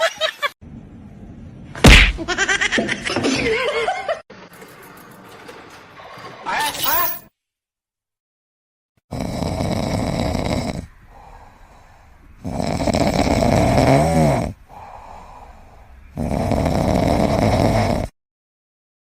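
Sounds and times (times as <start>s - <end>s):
pet snoring: 9.1s - 11.4s, 12.4s - 15.5s, 16.1s - 18.2s.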